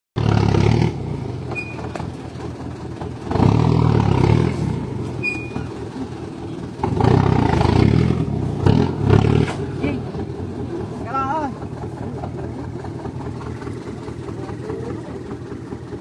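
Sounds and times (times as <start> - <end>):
diesel truck engine revving: 0.2 - 16.0
brief high squeaks: 1.5 - 2.0, 5.2 - 5.8.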